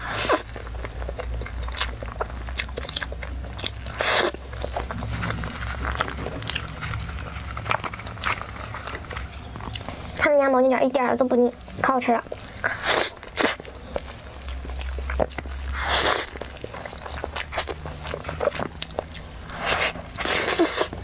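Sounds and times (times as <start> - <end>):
low hum: 0.0 - 10.3
wet chewing with mouth clicks: 0.0 - 21.0.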